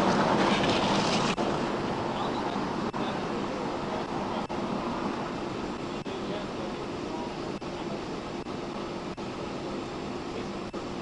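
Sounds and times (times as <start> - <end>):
highway traffic passing: 0.0 - 7.2.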